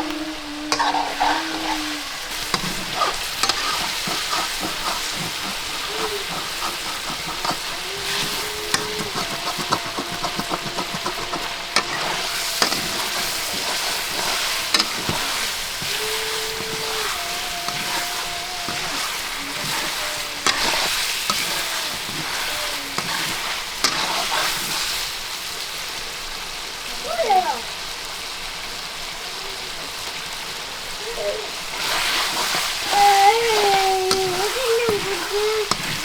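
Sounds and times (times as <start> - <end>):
chicken sizzling in hot oil: 0.0 - 36.0
utensil clicking against pan: 2.5 - 24.8.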